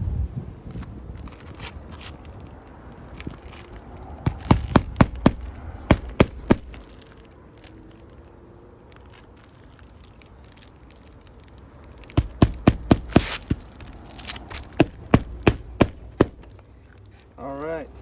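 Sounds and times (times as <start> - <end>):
hammer driving nails: 4.3 - 6.8, 12.2 - 16.6.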